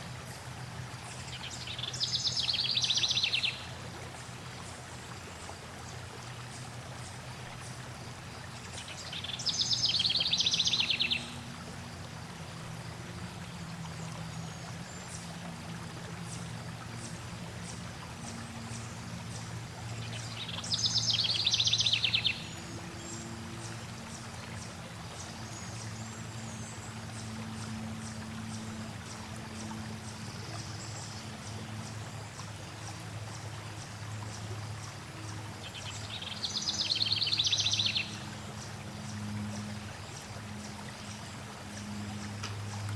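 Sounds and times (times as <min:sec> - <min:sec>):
flowing water: 0:00.0 - 0:42.9
songbird trilling: 0:08.8 - 0:11.4, 0:20.1 - 0:23.2.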